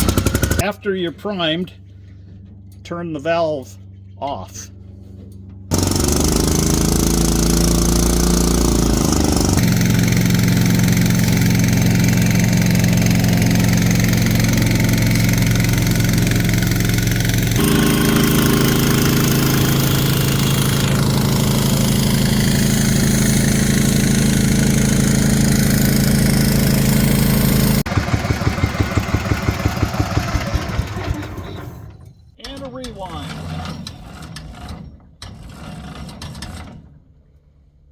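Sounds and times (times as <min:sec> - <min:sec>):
pump engine running: 0:00.0 - 0:00.6, 0:05.7 - 0:31.9.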